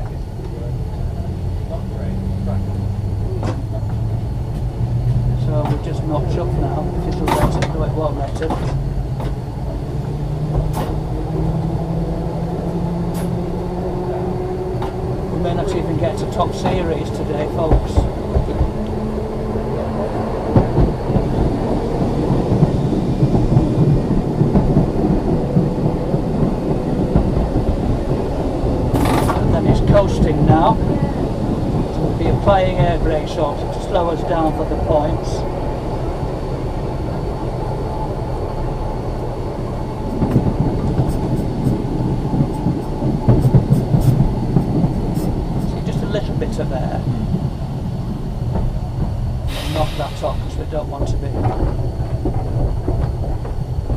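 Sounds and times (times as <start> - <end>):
tram rumbling and rattling: 0.0 - 53.9
sharp knocks and clicks: 3.4 - 6.0, 7.0 - 9.4, 15.7 - 19.0, 40.1 - 45.7.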